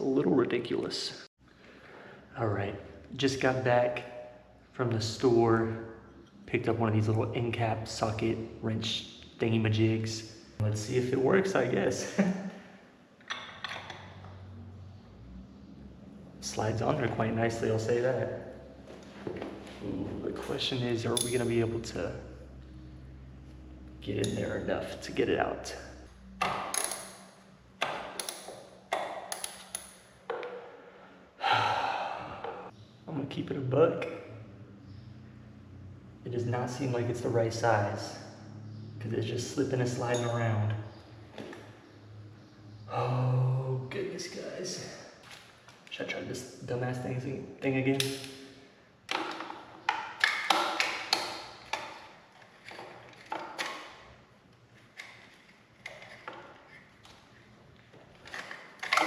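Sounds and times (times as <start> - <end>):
metal tool clinking on filter: 21.1 - 21.6.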